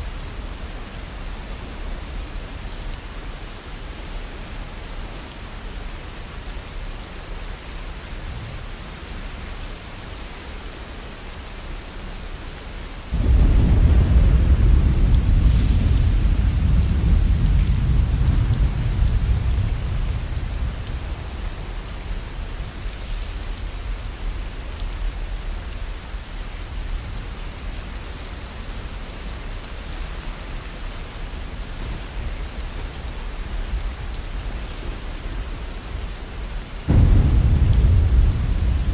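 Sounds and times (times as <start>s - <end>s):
heavy rain: 0.0s - 38.9s
deep thunderclap rumbling: 13.1s - 22.7s, 36.9s - 38.9s.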